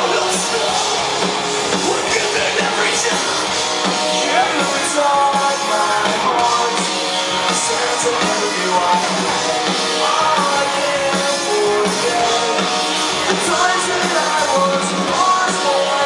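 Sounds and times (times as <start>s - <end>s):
loud electric guitars: 0.0s - 16.0s
pounding drums: 0.0s - 16.0s
person singing: 4.2s - 16.0s.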